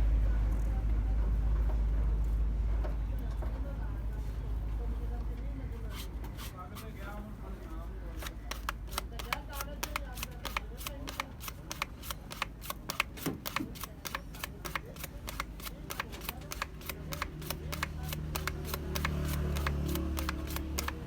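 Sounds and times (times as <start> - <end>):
hand scrubbing metal casing: 5.9 - 7.0.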